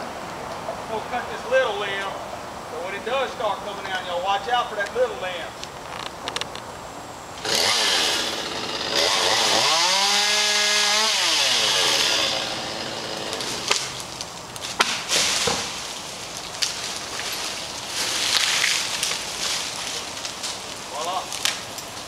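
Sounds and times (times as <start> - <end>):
chainsaw revving: 7.4 - 14.0.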